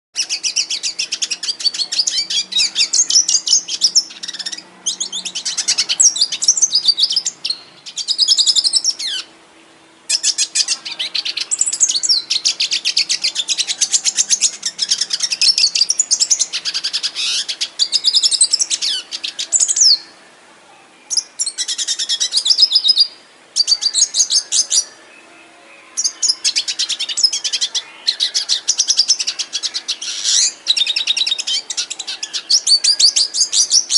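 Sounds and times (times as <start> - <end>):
canary singing trills: 0.2 - 9.4, 10.1 - 33.9.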